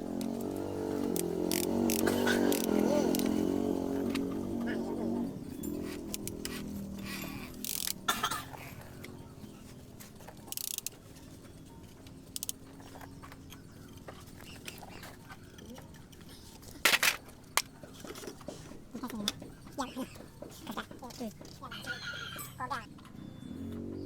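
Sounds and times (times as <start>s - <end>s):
metal tools clicking and knocking: 5.5s - 8.3s, 10.2s - 11.2s, 11.8s - 19.6s.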